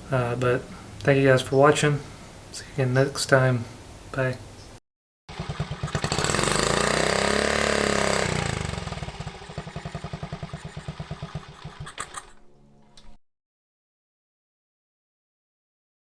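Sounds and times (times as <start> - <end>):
engine revving: 5.3 - 12.4.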